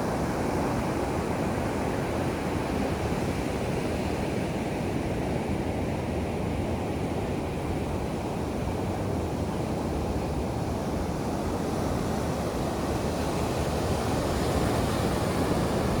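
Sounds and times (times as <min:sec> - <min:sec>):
ocean surf washing: 0:12.7 - 0:16.0.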